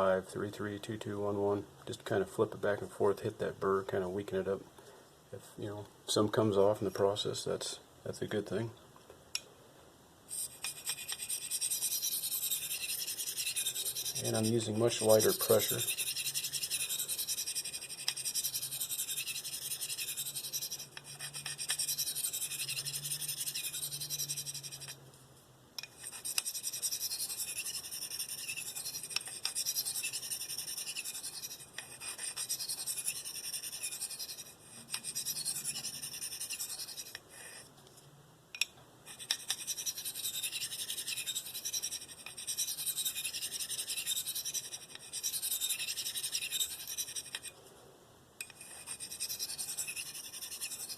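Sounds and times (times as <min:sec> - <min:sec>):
knife blade scraping on stone: 0:10.3 - 0:25.0, 0:25.8 - 0:37.6, 0:38.6 - 0:47.6, 0:48.4 - 0:50.9.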